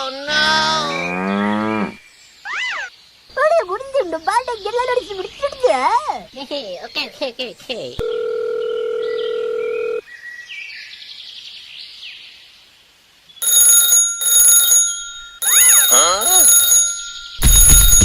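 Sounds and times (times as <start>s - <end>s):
falling warbling chirp: 2.4s - 2.9s, 15.4s - 16.4s
shrill alarm-like ringing: 13.4s - 18.0s
electronic toy bleeps: 15.4s - 16.4s.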